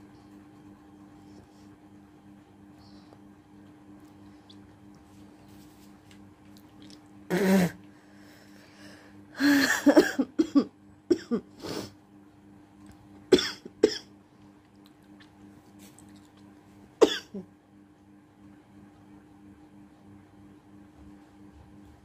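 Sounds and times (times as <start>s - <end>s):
person spitting: 6.7s - 7.8s.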